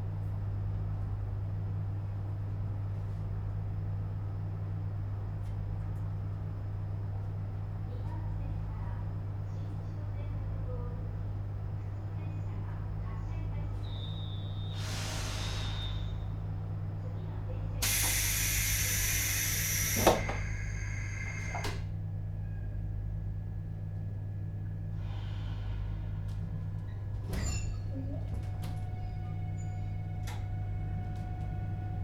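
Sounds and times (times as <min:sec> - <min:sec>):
train equipment low hum: 0:00.0 - 0:32.0
compressed air hiss: 0:14.7 - 0:16.1, 0:17.8 - 0:21.8.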